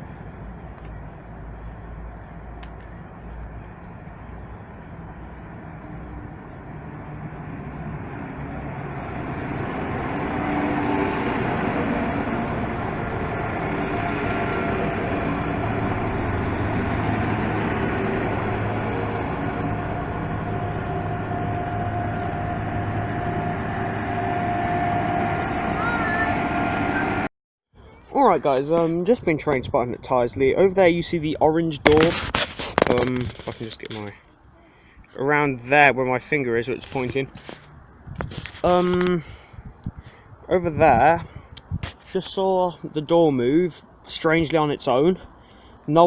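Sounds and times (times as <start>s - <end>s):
train rumbling past: 0.0s - 27.3s.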